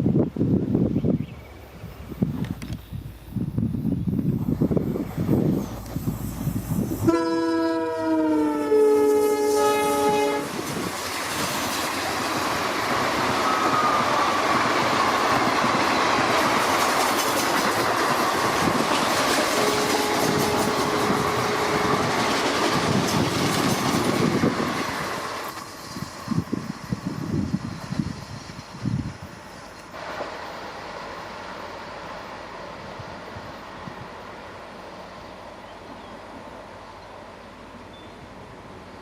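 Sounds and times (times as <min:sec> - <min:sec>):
train rolling past: 0:00.0 - 0:39.0
locomotive multi-tone horn: 0:07.0 - 0:10.7, 0:13.3 - 0:14.4, 0:19.3 - 0:22.4.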